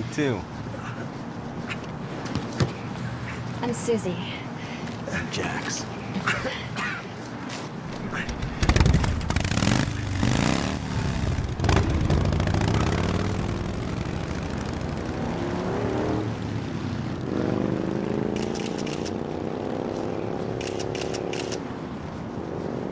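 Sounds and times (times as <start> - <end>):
motorcycle engine accelerating: 8.5 - 16.6.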